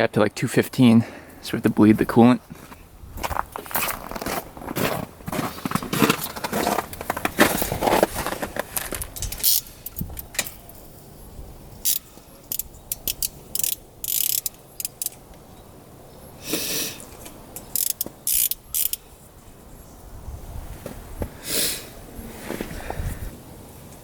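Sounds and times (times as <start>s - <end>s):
ratchet wrench clicking: 9.2s - 10.5s, 11.8s - 15.2s, 17.6s - 19.0s.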